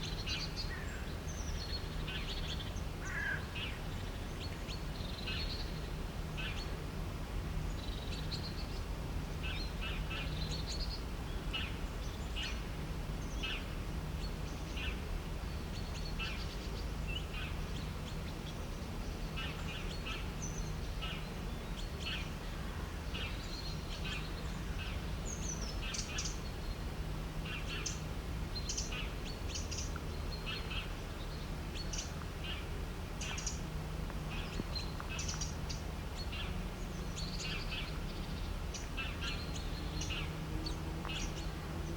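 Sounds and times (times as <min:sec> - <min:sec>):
birds chirping: 0:23.1 - 0:41.9.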